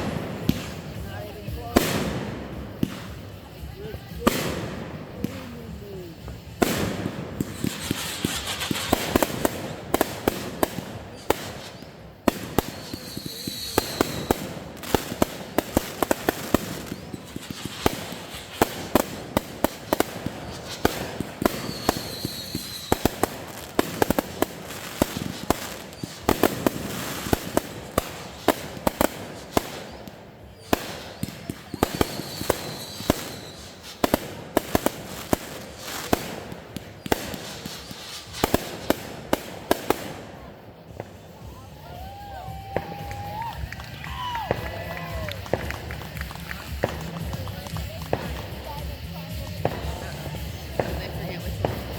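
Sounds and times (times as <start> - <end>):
fireworks bangs and crackling: 0.0 - 51.9
firework whistle: 4.2 - 38.9, 41.4 - 47.1.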